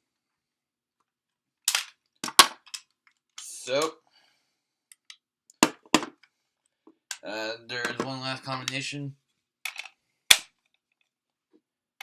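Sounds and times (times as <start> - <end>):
plastic toy pieces clicking: 1.7 - 2.9.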